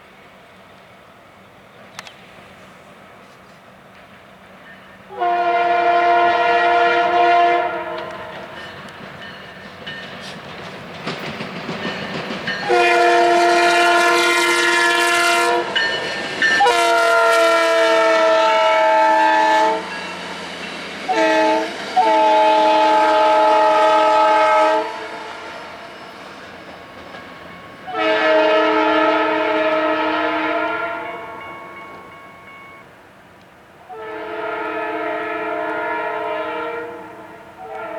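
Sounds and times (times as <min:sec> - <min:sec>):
train running noise: 0:00.0 - 0:37.9
locomotive air horn: 0:05.1 - 0:08.6, 0:12.6 - 0:15.8, 0:16.6 - 0:19.9, 0:21.0 - 0:25.8, 0:27.9 - 0:31.5, 0:33.9 - 0:37.9.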